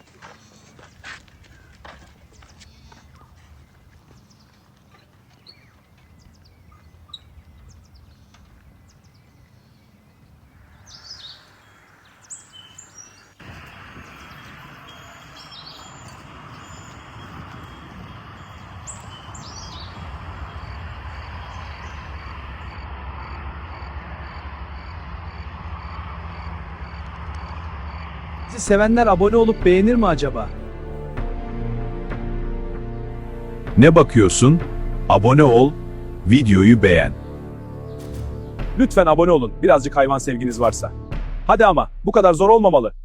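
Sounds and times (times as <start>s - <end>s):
birds chirping: 0.0s - 22.8s, 33.2s - 39.6s
outdoor background noise: 0.0s - 28.8s
faint high chirp: 12.3s - 22.7s.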